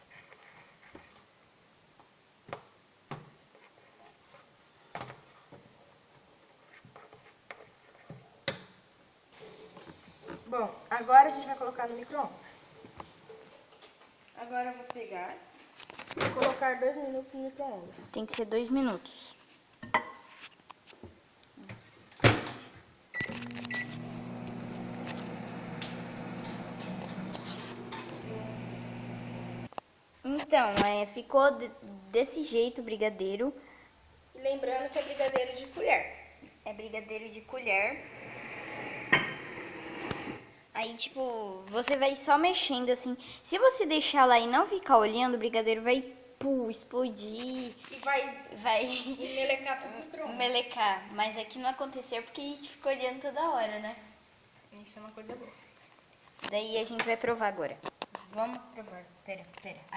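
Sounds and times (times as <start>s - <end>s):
microwave humming: 23.2s - 29.7s.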